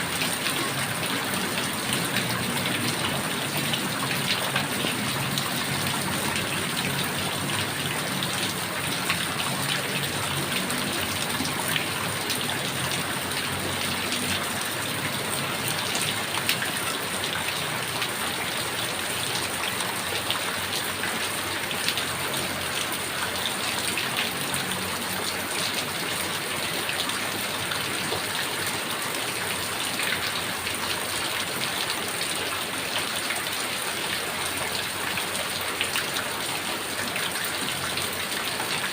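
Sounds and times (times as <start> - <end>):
heavy rain falling: 0.0 - 38.9
raindrops ticking on surfaces: 0.0 - 38.9.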